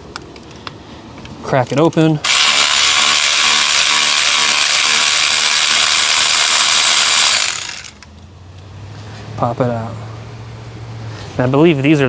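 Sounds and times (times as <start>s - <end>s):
ratchet wrench clicking: 1.6s - 8.0s.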